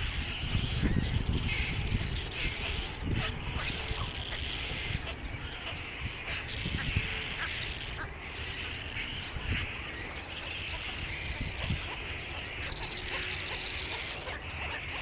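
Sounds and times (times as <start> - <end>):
small birds chirping chorus: 0.0 - 15.0.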